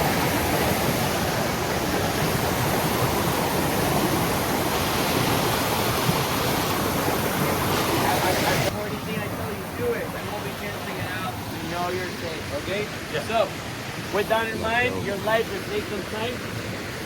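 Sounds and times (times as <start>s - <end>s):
water rushing over rocks: 0.0s - 17.0s.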